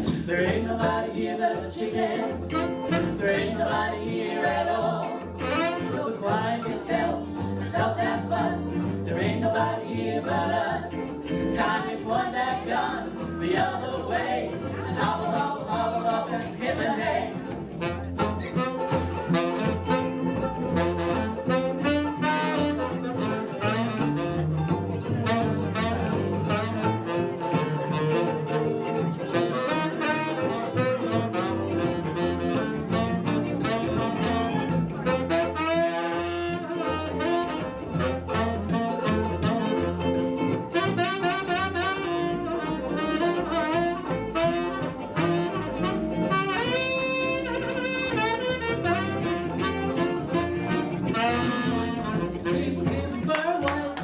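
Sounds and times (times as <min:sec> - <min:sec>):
guitar and bass: 0:00.0 - 0:54.0
tenor saxophone solo: 0:02.4 - 0:03.3, 0:05.2 - 0:06.2, 0:17.7 - 0:52.9.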